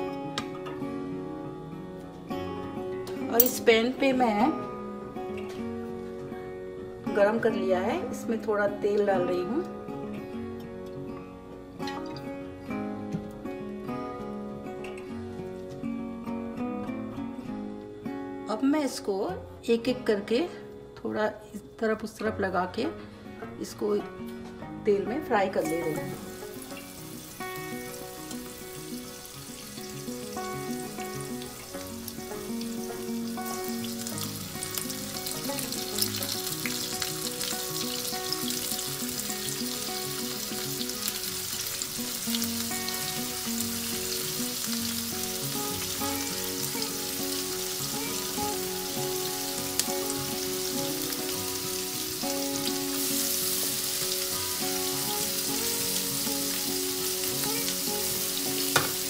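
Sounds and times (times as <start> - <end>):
food sizzling in hot oil: 25.6 - 59.0.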